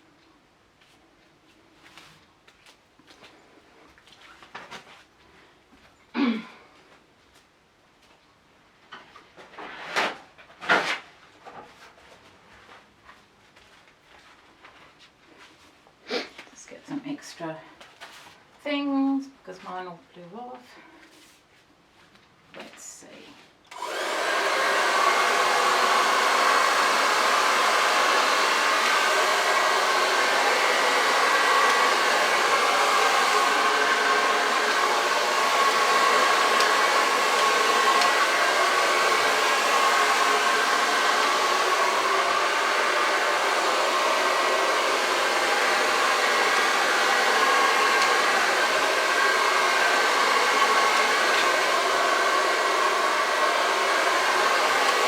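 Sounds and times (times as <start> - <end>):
hair dryer running: 23.7 - 55.0.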